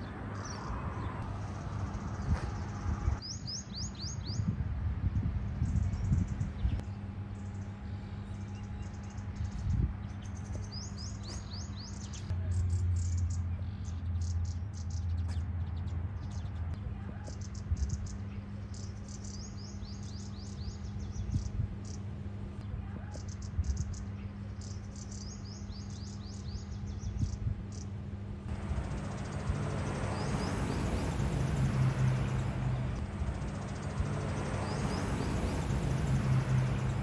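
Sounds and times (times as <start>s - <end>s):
small birds chirping: 0.0s - 37.0s
steady low hum: 4.4s - 37.0s.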